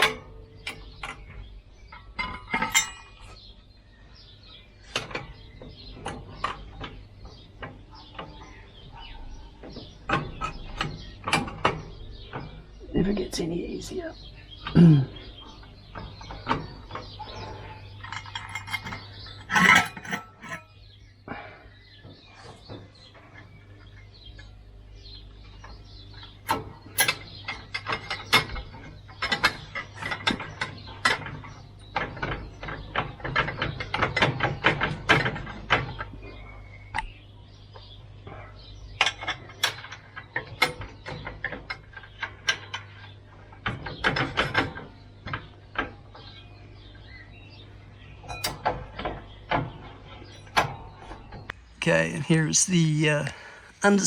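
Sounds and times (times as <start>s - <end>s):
hand tools clanking on metal: 0.0s - 3.5s, 16.1s - 20.8s, 26.5s - 31.6s, 48.2s - 48.8s.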